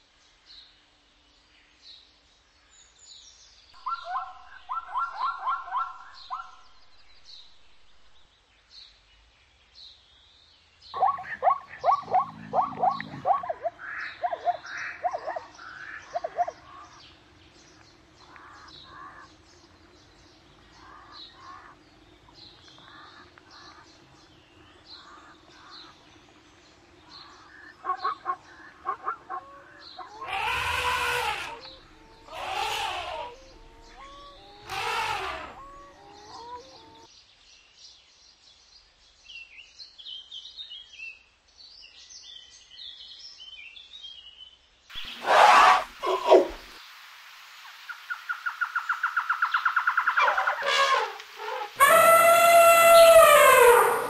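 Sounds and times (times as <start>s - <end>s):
small birds chirping: 2.7s - 41.0s, 41.7s - 54.0s
zebra barking calls: 11.0s - 17.0s, 27.5s - 37.1s, 45.0s - 46.7s, 50.0s - 54.0s.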